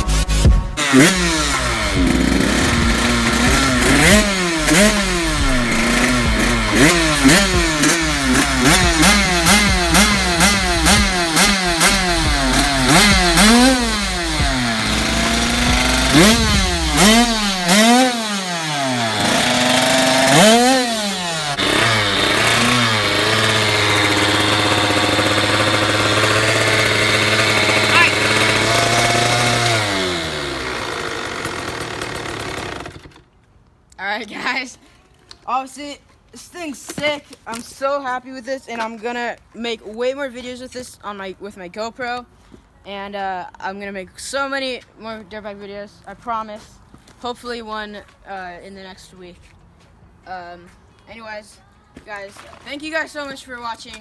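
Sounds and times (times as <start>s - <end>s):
dirt bike engine revving: 0.0s - 33.2s
dirt bike engine idling: 0.8s - 33.3s.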